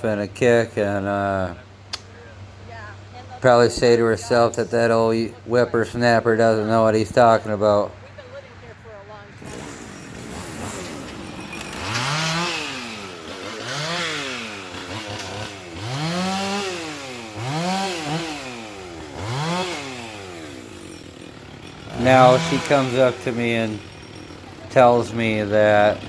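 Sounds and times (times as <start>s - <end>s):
chainsaw engine revving: 9.3s - 26.0s.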